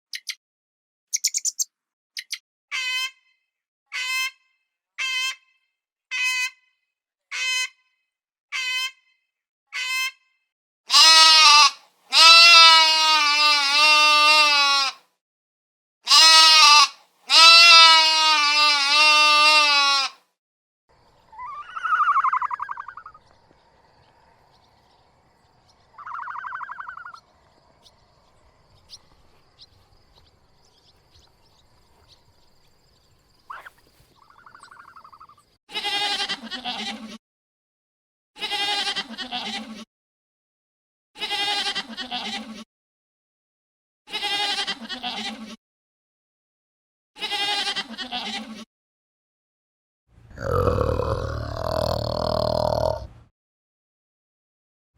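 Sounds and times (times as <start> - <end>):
sheep bleating: 10.9 - 15.0, 16.1 - 20.2, 35.7 - 37.2, 38.4 - 39.7, 41.2 - 42.5, 44.1 - 45.4, 47.2 - 48.5, 50.3 - 53.1.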